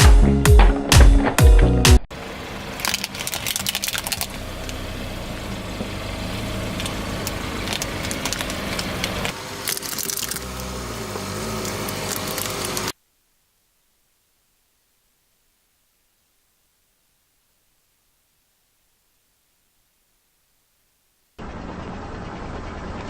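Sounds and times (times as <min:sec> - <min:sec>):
car engine running: 0:02.1 - 0:12.9
tyres crushing crunchy objects: 0:02.7 - 0:04.9, 0:05.8 - 0:12.9.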